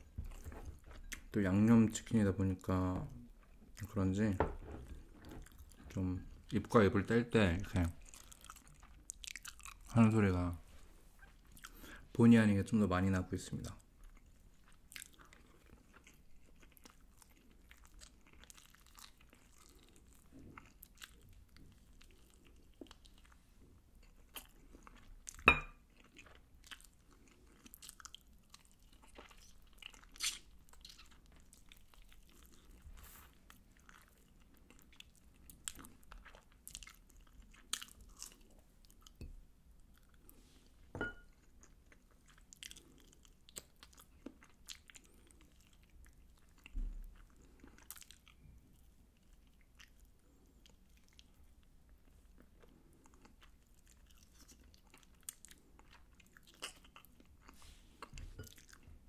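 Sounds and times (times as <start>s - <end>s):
chewing and biting: 8.0s - 9.9s, 14.0s - 23.4s, 24.0s - 39.2s, 41.4s - 59.0s.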